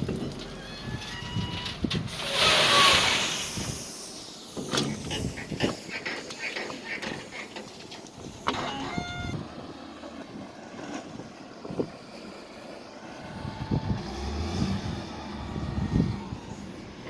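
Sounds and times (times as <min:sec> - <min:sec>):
knocks and clanks: 0:04.6 - 0:09.0
heavy vehicle engine running: 0:04.6 - 0:17.0.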